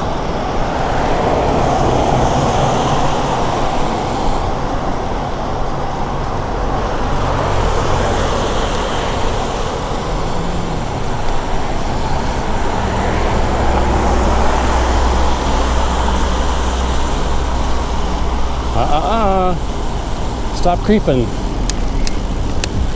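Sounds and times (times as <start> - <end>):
large engine low drone: 0.0 - 22.9
road traffic rumble: 0.0 - 22.9.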